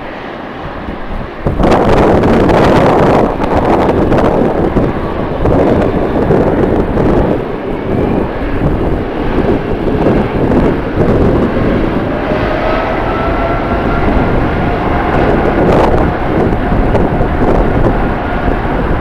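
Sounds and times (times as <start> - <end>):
jet engines running: 0.0 - 19.0
wind buffeting on microphone: 0.0 - 19.0.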